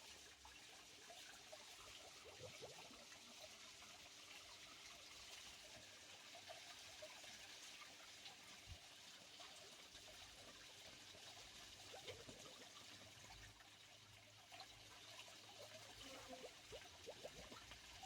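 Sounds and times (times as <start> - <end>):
water drips and splashes: 0.0 - 18.0
water trickling: 0.0 - 18.0.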